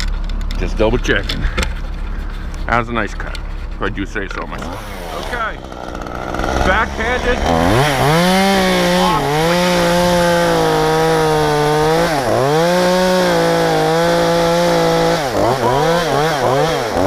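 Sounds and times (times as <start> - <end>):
chainsaw cutting wood: 4.4 - 17.0.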